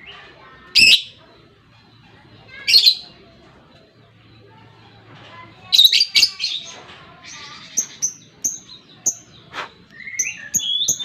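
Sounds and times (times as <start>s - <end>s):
chattering bird trill: 0.0s - 11.0s
lovebird chirping: 5.6s - 11.0s.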